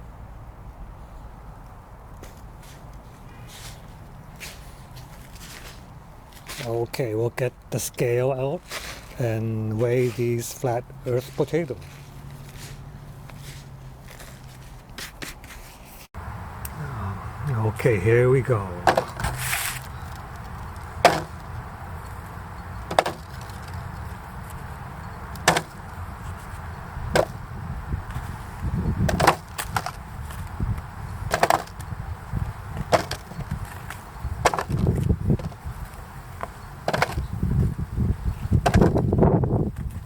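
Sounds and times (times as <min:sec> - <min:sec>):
low rumbling handling noise: 0:08.7 - 0:40.0.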